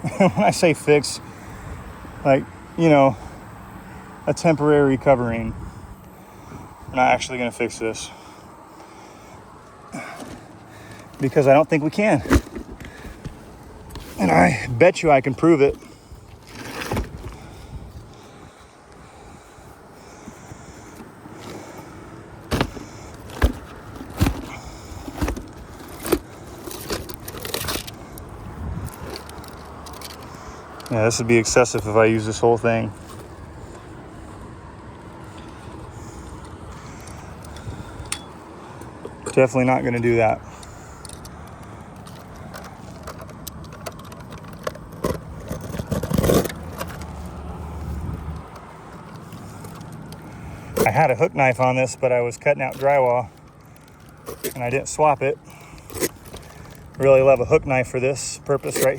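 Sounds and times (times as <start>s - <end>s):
crinkling rustles: 8.8s - 34.4s, 52.4s - 58.9s
clicks and scrapes: 42.0s - 47.4s.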